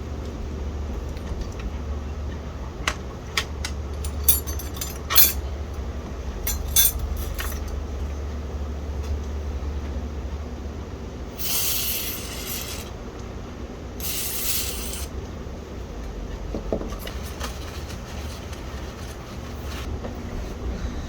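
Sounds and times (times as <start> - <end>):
aerosol spray hissing: 11.4 - 12.9, 14.0 - 15.1.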